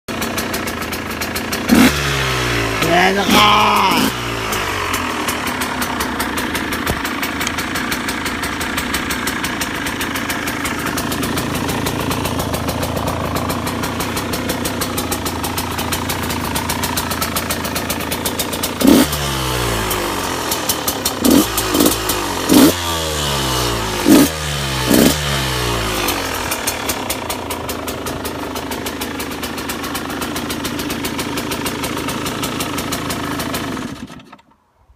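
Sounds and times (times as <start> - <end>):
two-stroke engine idling: 0.1 - 34.6
engine revving: 1.5 - 8.2, 11.3 - 27.4.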